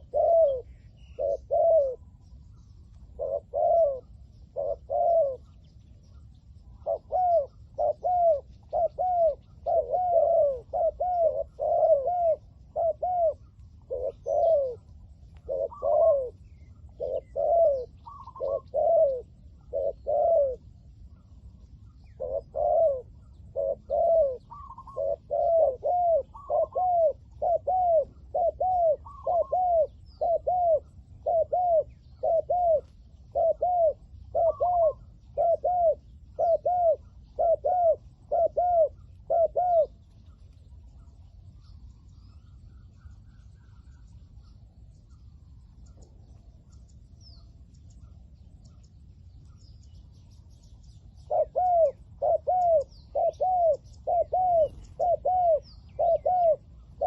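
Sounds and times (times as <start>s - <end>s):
doves cooing: 0.0s - 49.8s, 50.6s - 57.0s.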